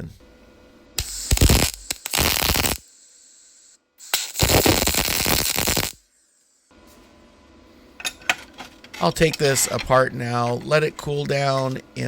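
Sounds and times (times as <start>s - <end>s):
welding arc crackle: 1.0s - 6.1s.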